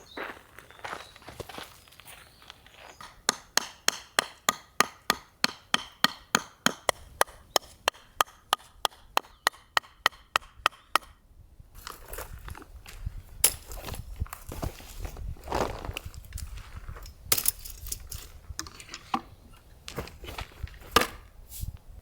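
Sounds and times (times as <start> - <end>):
rapid sharp knocks: 3.3 - 11.1.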